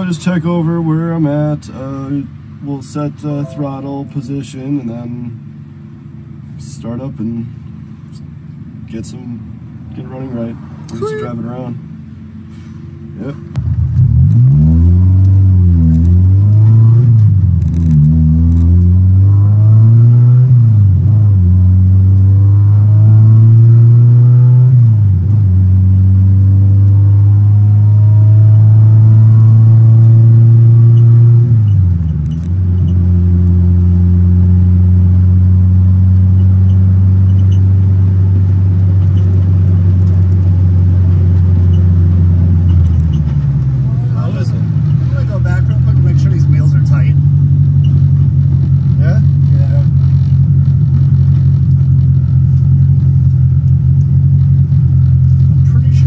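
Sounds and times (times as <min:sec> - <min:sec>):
car engine accelerating: 0:12.8 - 0:56.0.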